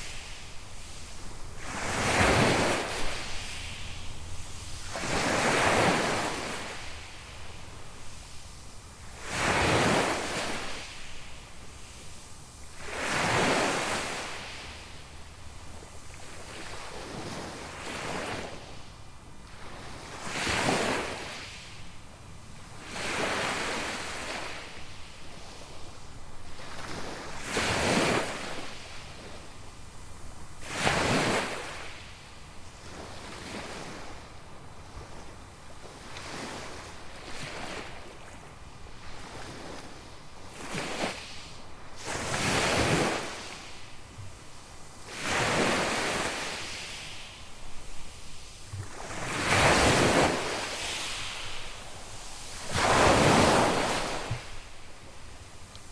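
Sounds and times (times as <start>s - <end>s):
small waves breaking on beach: 0.0s - 18.8s, 19.5s - 21.8s, 22.6s - 55.9s.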